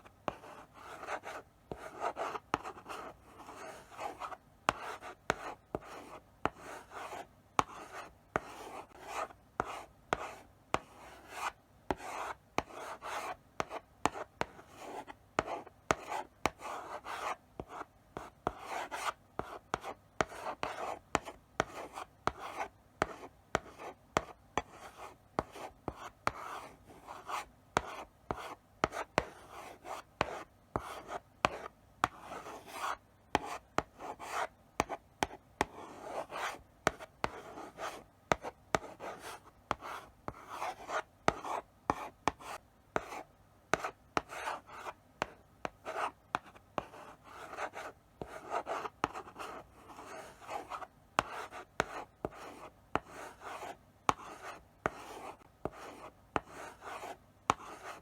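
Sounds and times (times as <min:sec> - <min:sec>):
chalk tapping on board: 0:00.3 - 0:24.8, 0:30.0 - 0:58.0
chalk scratching on blackboard: 0:00.3 - 0:58.0.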